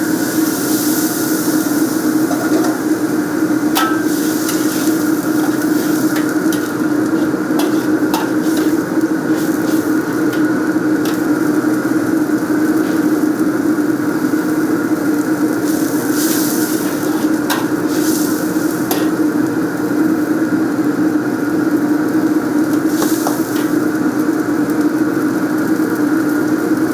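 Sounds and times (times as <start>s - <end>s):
kitchen equipment roaring: 0.0s - 26.5s.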